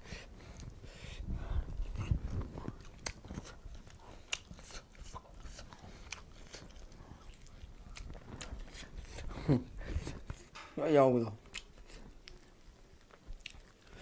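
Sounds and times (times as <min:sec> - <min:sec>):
crunches and crackles: 0:00.2 - 0:10.7, 0:11.4 - 0:14.0
chewing and biting meat: 0:01.8 - 0:09.4, 0:11.4 - 0:14.0.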